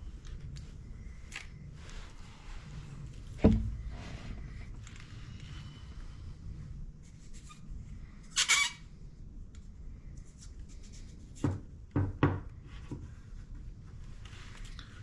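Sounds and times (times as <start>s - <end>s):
dull knocks: 3.4s - 3.8s.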